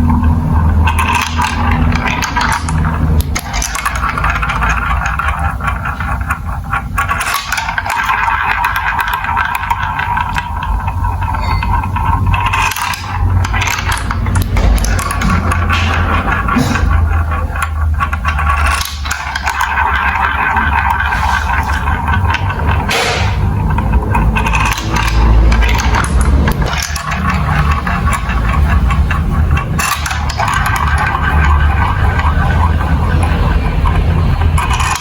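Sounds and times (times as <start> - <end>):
marbles rolling on plastic tracks: 0.0 - 35.0.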